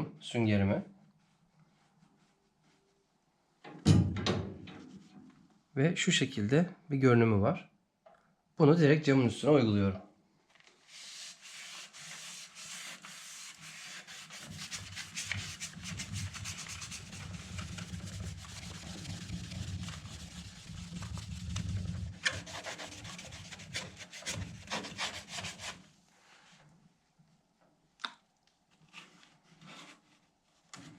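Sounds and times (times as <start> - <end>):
sponge scrubbing glass: 10.9 - 25.8.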